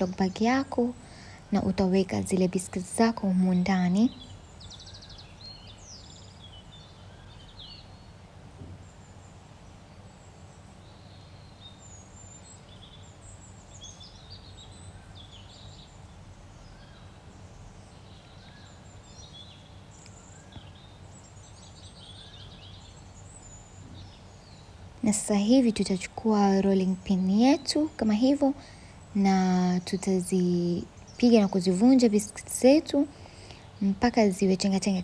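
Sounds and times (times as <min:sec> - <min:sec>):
small birds chirping: 0:00.0 - 0:35.0
steady low hum: 0:00.0 - 0:35.0.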